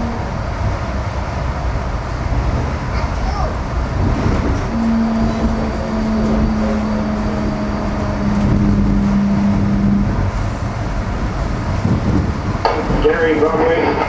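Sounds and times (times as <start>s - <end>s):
train rumble: 0.0s - 14.0s
low hum: 3.6s - 14.0s.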